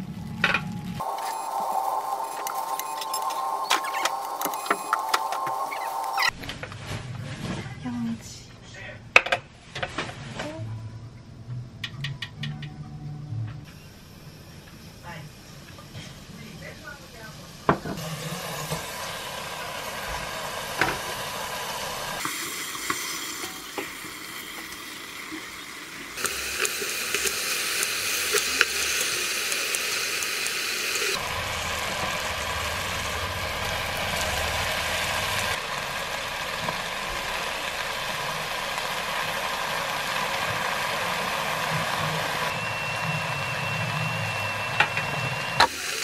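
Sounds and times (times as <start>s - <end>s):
food sizzling in oil: 0.0s - 6.4s, 16.2s - 46.0s.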